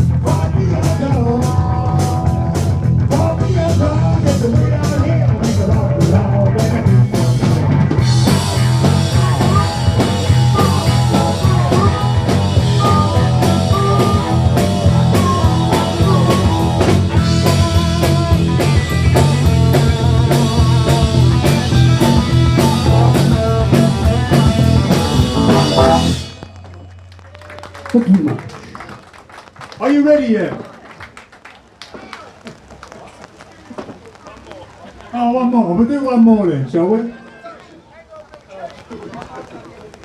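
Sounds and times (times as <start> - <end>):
drum kit: 0.0 - 28.2
bent guitar notes: 6.3 - 27.5.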